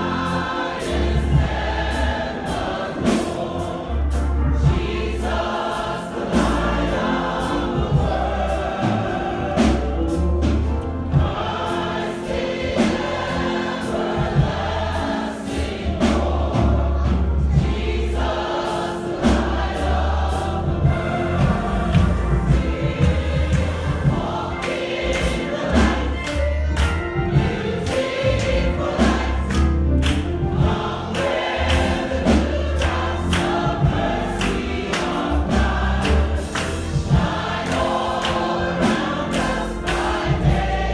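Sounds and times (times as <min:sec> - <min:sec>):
congregation singing gospel: 0:00.0 - 0:40.9
instrumental accompaniment with bass: 0:00.0 - 0:40.9.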